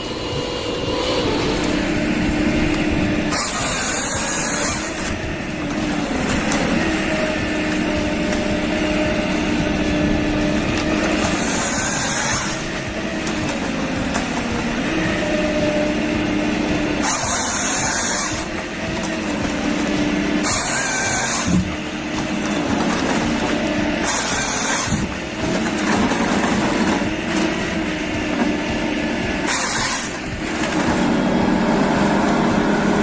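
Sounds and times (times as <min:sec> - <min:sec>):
high hiss: 0:00.0 - 0:10.7
heavy machine engine running: 0:00.0 - 0:33.0.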